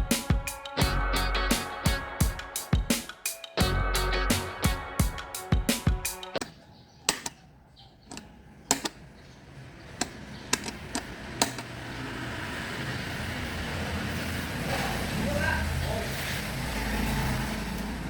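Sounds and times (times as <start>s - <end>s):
steady noise: 0.0s - 6.3s
sharp clicks and knocks: 6.3s - 7.4s, 8.1s - 9.0s, 10.0s - 11.7s.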